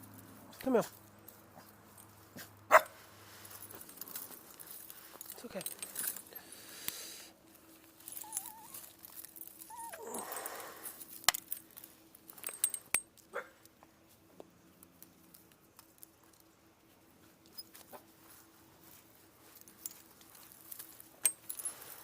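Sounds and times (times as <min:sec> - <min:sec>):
rustling: 0:00.0 - 0:13.0, 0:14.0 - 0:22.0
dog whimpering: 0:08.2 - 0:08.8, 0:09.7 - 0:10.4.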